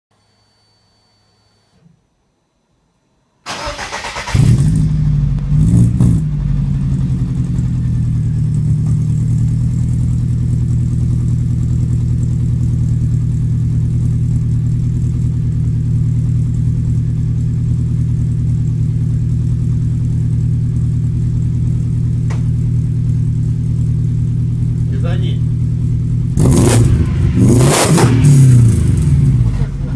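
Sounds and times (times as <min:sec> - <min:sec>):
car engine revving and idling: 0:04.2 - 0:29.9.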